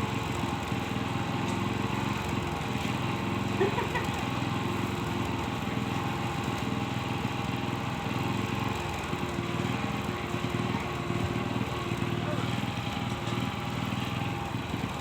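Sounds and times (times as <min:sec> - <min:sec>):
small engine puttering: 0:00.0 - 0:15.0.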